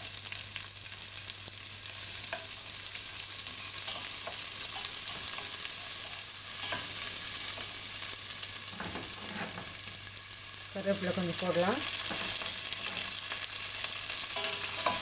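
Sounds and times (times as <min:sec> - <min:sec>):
onion sizzling in oil: 0:00.0 - 0:15.0
spoon stirring and scraping pan: 0:02.0 - 0:09.8, 0:11.9 - 0:15.0.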